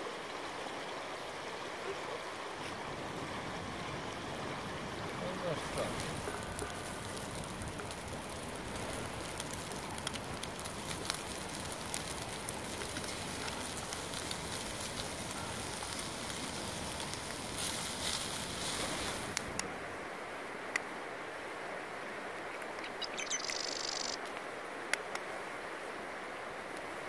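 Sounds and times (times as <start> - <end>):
food sizzling in a pan: 5.4 - 19.4
sharp crackling pops: 5.5 - 19.8, 22.5 - 25.3.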